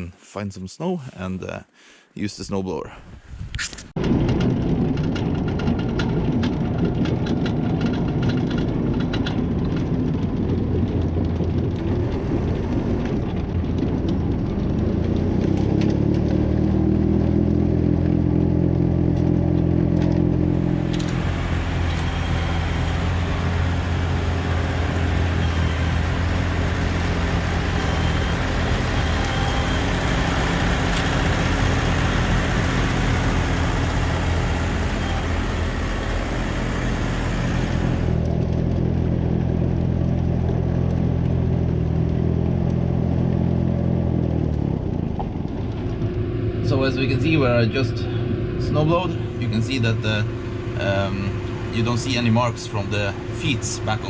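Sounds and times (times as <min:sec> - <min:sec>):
snowblower rushing: 0:04.0 - 0:54.0
tractor engine revving: 0:04.0 - 0:54.0.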